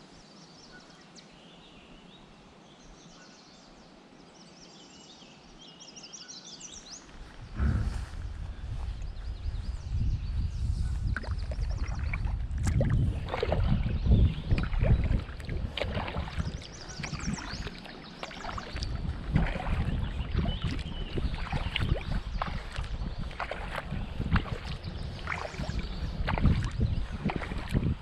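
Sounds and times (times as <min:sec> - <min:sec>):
wind rumbling on microphone: 0:06.8 - 0:28.0
paddle splashing in water: 0:11.0 - 0:28.0.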